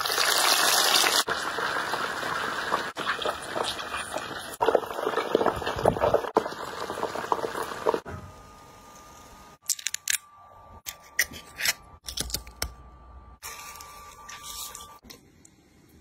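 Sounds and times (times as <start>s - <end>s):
oil sizzling in a pan: 0.0s - 8.0s.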